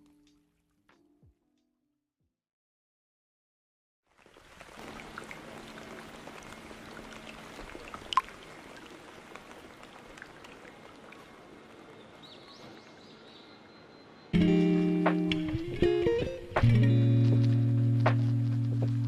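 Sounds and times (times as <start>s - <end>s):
steady rain: 4.1s - 13.7s
sharp drip: 7.2s - 8.4s
acoustic guitar music: 14.3s - 19.0s.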